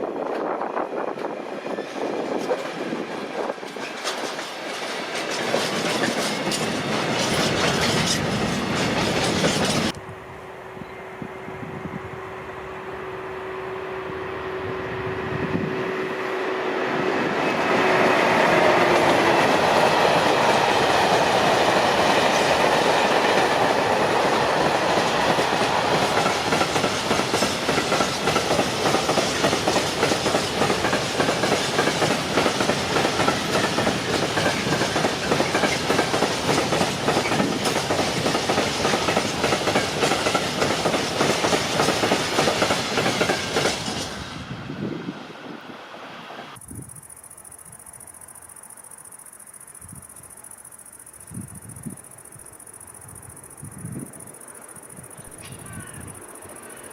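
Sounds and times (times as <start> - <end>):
freight train passing: 0.0 - 56.9
train wheels clattering over rail joints: 0.2 - 10.0, 17.6 - 44.3.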